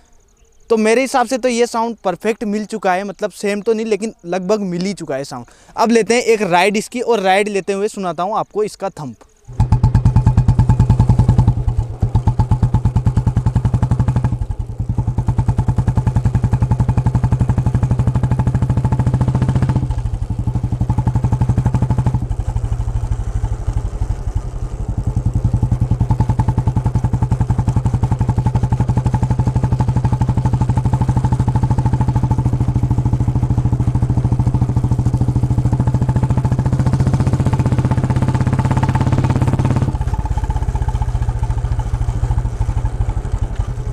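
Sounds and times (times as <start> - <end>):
motorcycle engine thumping: 9.4 - 43.9.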